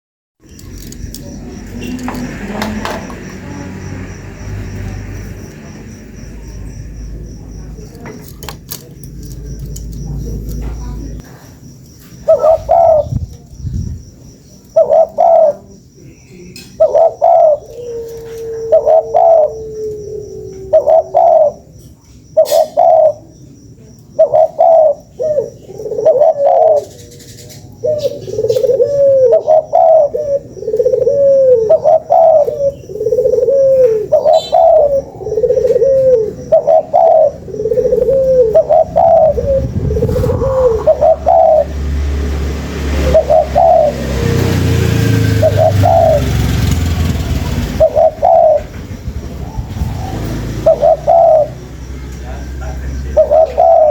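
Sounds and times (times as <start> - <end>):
dove cooing: 12.1 - 13.5, 14.6 - 23.4, 24.1 - 53.9.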